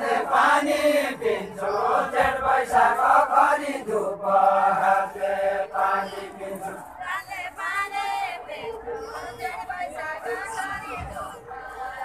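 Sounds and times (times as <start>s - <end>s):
group singing folk song: 0.0s - 9.2s.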